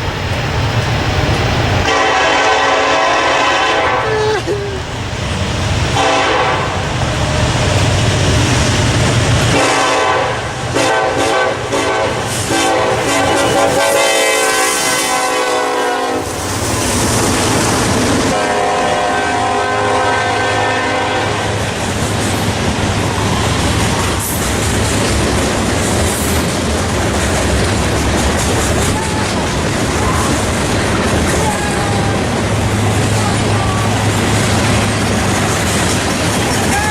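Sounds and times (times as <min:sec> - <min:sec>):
freight train rumbling: 0:00.0 - 0:36.9
locomotive horn blasts: 0:01.8 - 0:04.6, 0:05.9 - 0:06.8, 0:09.5 - 0:16.3, 0:18.3 - 0:21.6.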